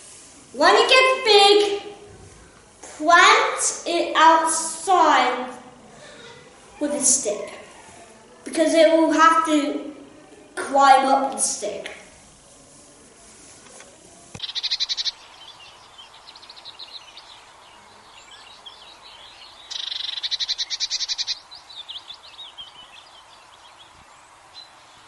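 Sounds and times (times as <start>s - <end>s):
faint background hiss: 0.0s - 25.0s
bird trilling: 14.4s - 17.4s, 18.4s - 23.2s
bird chirps: 14.4s - 25.0s.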